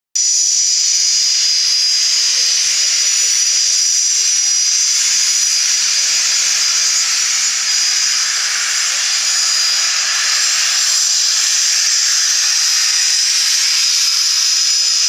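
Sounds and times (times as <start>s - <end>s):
jet engines whining: 1.8s - 13.7s.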